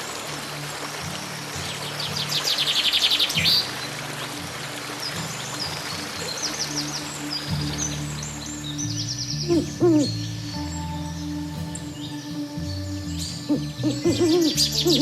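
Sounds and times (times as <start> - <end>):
soft background music: 0.0 - 15.0
bird chirps: 5.1 - 15.0
bird trilling: 8.5 - 15.0.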